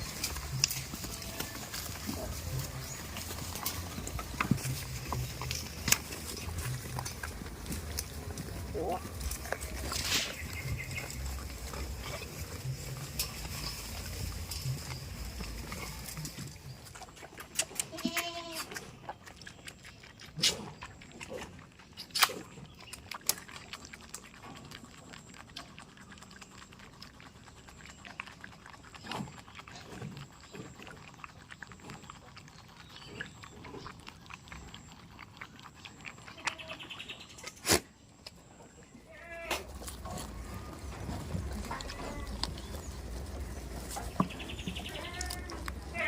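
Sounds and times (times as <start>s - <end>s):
rustling: 0.0s - 16.9s, 39.1s - 46.0s
goat bleating: 0.9s - 1.9s, 17.7s - 18.8s, 39.1s - 39.8s, 41.5s - 42.6s, 44.3s - 46.0s.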